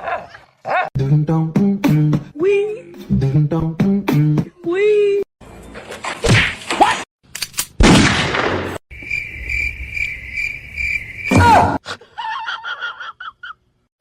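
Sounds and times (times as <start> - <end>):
cricket-like trill: 8.9 - 11.8.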